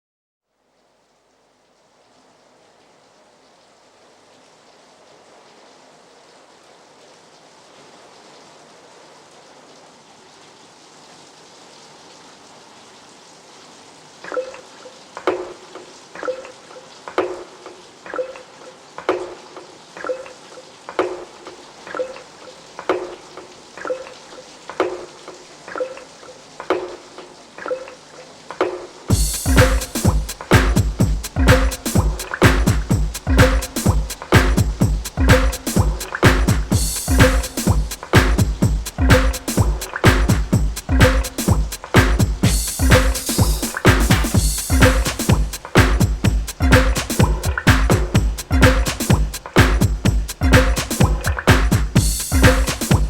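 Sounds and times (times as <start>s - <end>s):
rain hiss sound effect: 0.7s - 53.0s
pitched drip-like notes: 14.2s - 25.1s, 25.7s - 53.0s.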